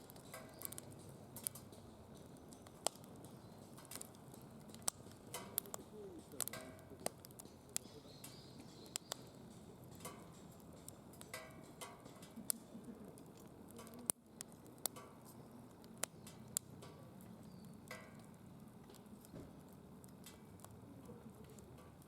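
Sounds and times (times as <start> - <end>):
low steady fire hiss: 0.0 - 22.0
wood fire crackling and popping: 0.0 - 22.0.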